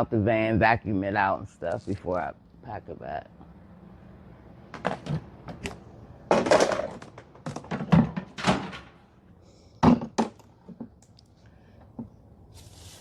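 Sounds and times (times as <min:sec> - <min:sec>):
equipment set down thunks: 0:06.3 - 0:09.0, 0:09.8 - 0:10.9
scraping rustle: 0:12.5 - 0:13.0.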